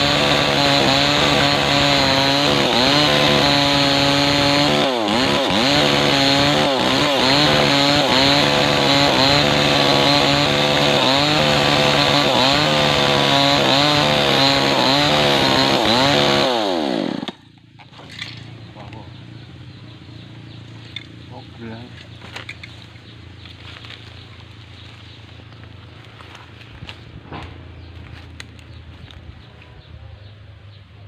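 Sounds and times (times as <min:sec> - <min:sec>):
chainsaw cutting log: 0:00.0 - 0:18.7.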